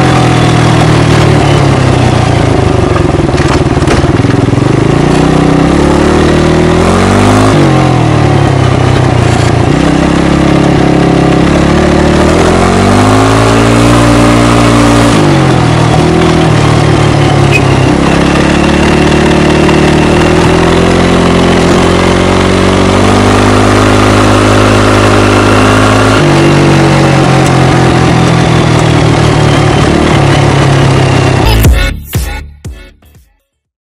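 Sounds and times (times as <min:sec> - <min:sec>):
loud quad engine revving: 0:04.4 - 0:08.9, 0:09.6 - 0:31.9.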